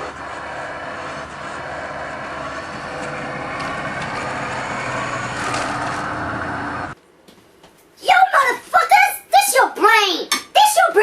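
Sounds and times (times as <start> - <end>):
motor running: 0.0 - 7.0.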